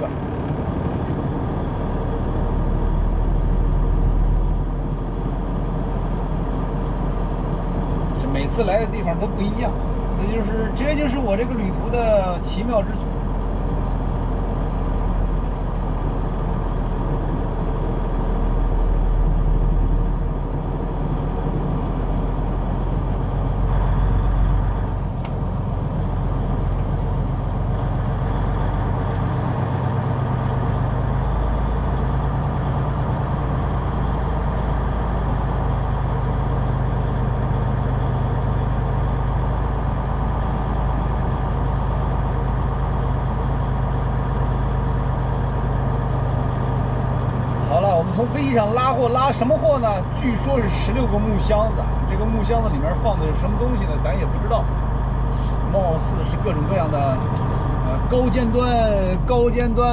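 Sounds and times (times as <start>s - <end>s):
truck diesel engine running: 0.0s - 59.9s.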